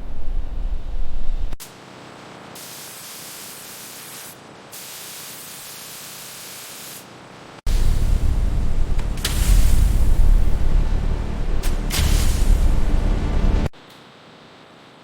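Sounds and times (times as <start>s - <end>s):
steady hiss: 1.4s - 14.4s
loud deep rumble: 7.7s - 13.7s.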